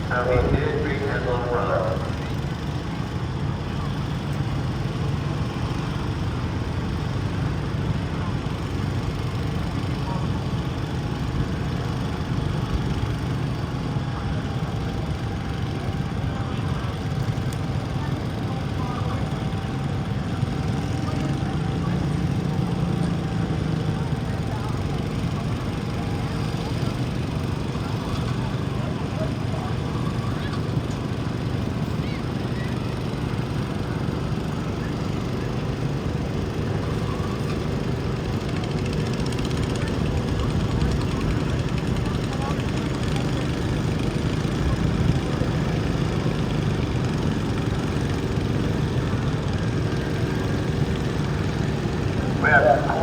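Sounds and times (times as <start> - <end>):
tractor engine rumbling: 0.0 - 7.6, 45.2 - 53.0
garden tractor engine running: 0.0 - 53.0.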